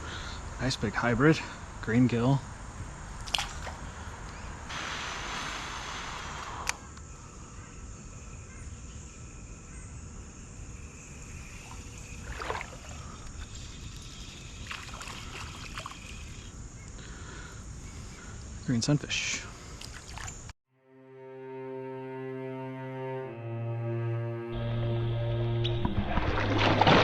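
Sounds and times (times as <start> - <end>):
loud hiss: 4.6 - 7.0
creek low rumble: 10.3 - 20.5, 24.6 - 27.0.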